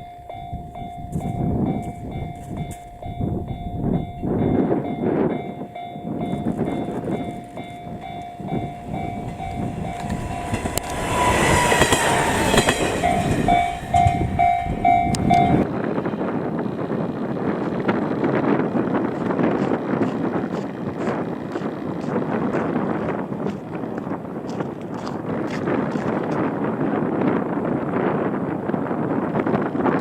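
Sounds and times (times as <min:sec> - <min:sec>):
crossing warning bell ringing: 0:00.0 - 0:16.6
train wheels knocking over rail joints: 0:06.2 - 0:15.6.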